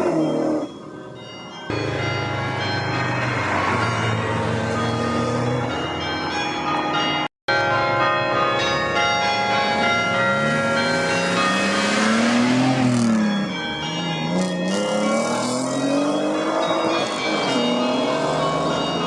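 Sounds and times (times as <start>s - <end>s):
bells ringing: 0.0s - 19.0s
car engine accelerating: 10.0s - 19.0s.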